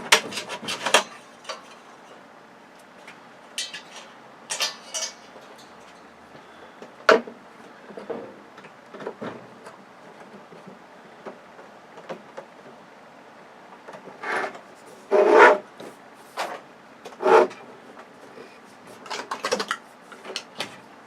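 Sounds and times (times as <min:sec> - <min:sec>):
plastic parts scraping and rubbing: 0:00.0 - 0:02.1.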